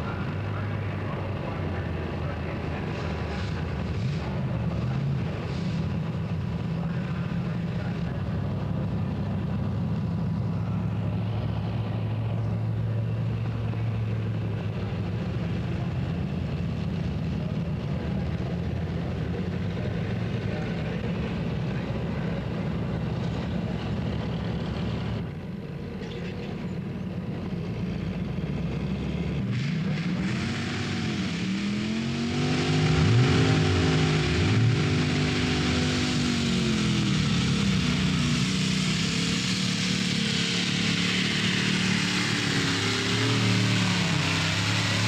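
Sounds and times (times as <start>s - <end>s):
tractor engine running hard: 0.0s - 45.0s.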